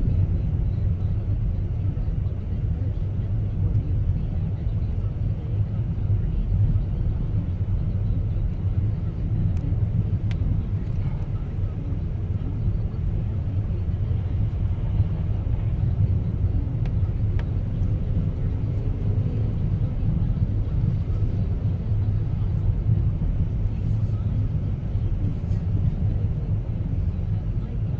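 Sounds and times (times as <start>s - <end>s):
car engine and tyre noise: 0.0s - 27.9s.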